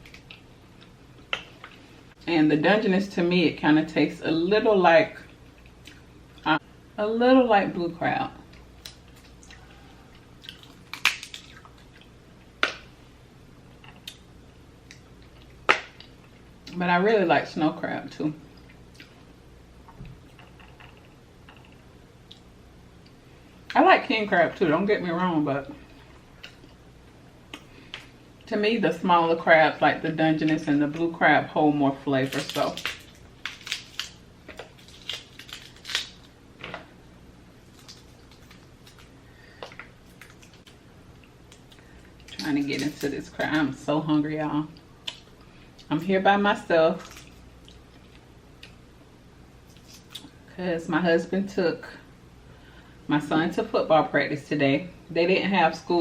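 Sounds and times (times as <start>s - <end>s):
crab shell cracking: 10.4s - 11.8s, 32.2s - 36.4s, 37.7s - 40.8s.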